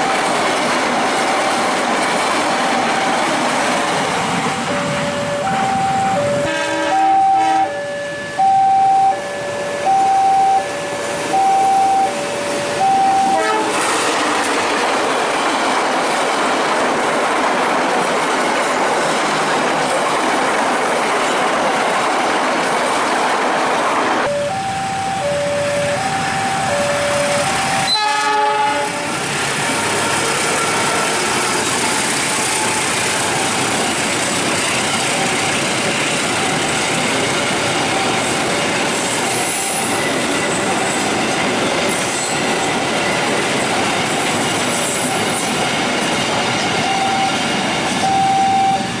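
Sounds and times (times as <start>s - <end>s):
train wheels clattering over rails: 0.0s - 5.2s, 13.5s - 24.3s, 28.8s - 48.2s
two-note crossing alarm: 4.6s - 13.6s, 24.3s - 28.2s, 46.8s - 47.4s, 48.0s - 48.9s
short train horn: 4.8s - 7.8s, 12.6s - 14.2s, 27.3s - 31.4s.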